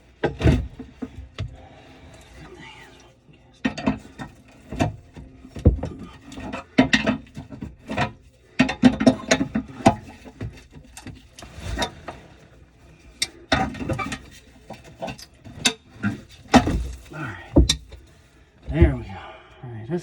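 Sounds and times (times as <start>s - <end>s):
tools knocking and clanking on pipe: 3.6s - 12.0s, 13.1s - 19.1s.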